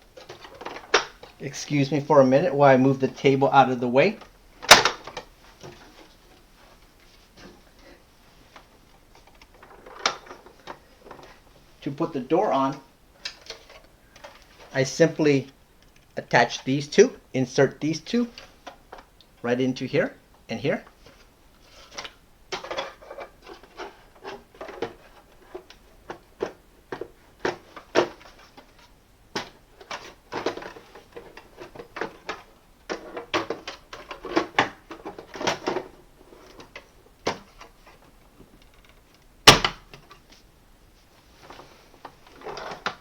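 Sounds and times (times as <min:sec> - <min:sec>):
plastic parts clicking and rattling: 0:00.1 - 0:01.6, 0:04.0 - 0:06.2, 0:08.6 - 0:11.4, 0:12.7 - 0:14.8, 0:21.1 - 0:40.4, 0:41.4 - 0:43.0.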